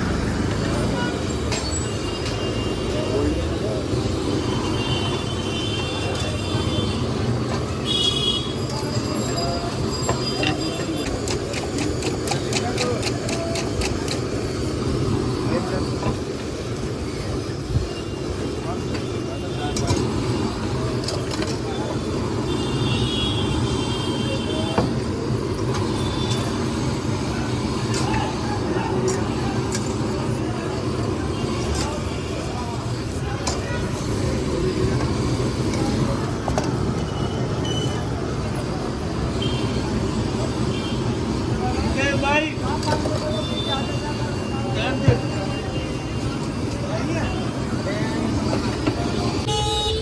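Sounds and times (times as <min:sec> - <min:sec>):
background chatter: 0:00.0 - 0:50.0
traffic rumble: 0:00.0 - 0:50.0.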